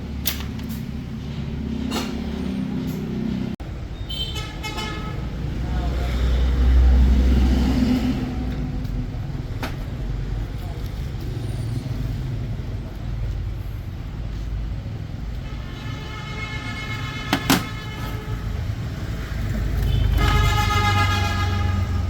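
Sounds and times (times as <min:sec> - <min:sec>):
vehicle horn blasts: 0:04.0 - 0:05.2, 0:15.4 - 0:18.6, 0:19.8 - 0:22.0.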